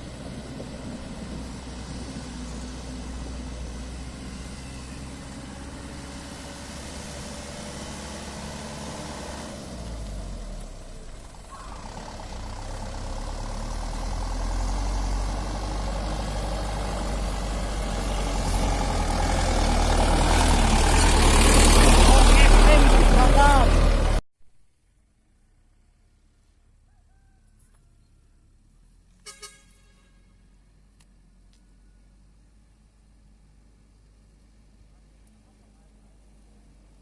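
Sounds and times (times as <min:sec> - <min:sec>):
truck diesel engine rumbling: 0:00.0 - 0:24.2.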